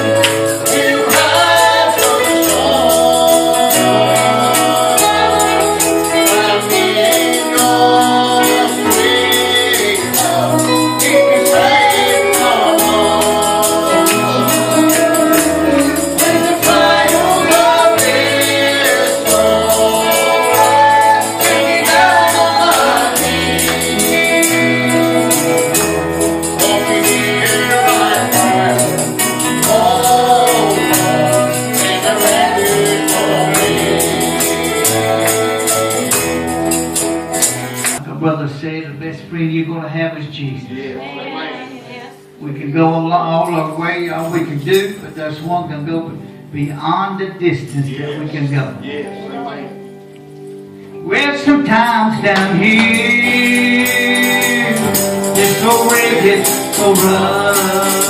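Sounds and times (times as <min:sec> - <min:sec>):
tambourine shaken: 0:00.0 - 0:38.0, 0:43.4 - 0:45.2, 0:51.8 - 0:58.0
voices singing: 0:00.0 - 0:38.0, 0:40.0 - 0:45.1, 0:51.0 - 0:58.0.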